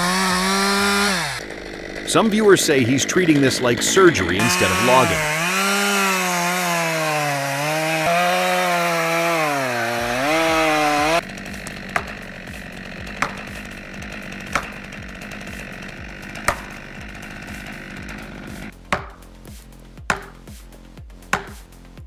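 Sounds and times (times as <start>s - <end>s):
chainsaw cutting: 0.0s - 20.6s, 21.3s - 21.8s
sharp knocks: 10.0s - 19.2s, 20.1s - 20.5s, 21.3s - 21.7s.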